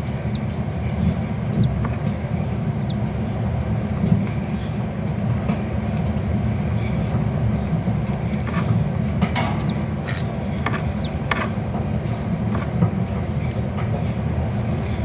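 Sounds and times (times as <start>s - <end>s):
high-pitched squeaks: 10.7s - 11.2s.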